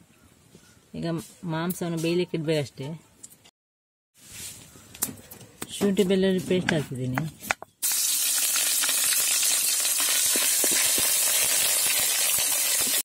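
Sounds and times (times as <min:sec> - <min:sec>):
paste sizzling in hot oil: 0:07.8 - 0:13.0.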